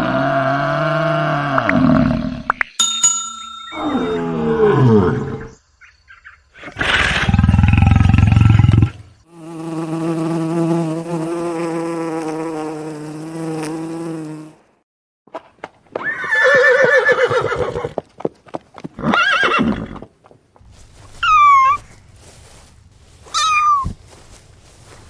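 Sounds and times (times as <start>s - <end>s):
harsh noisy animal roar: 3.9s - 5.5s
animal call sliding down: 23.3s - 23.9s.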